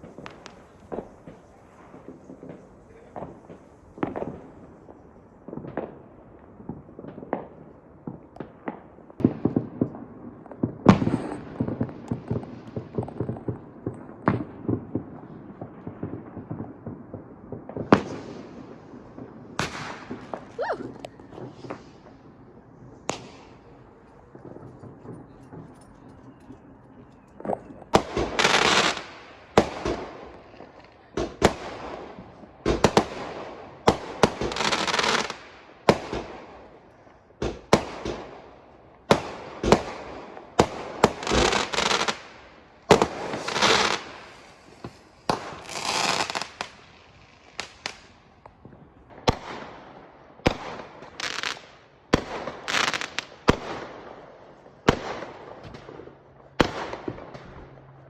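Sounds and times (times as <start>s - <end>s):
fireworks banging and crackling: 0.0s - 58.0s.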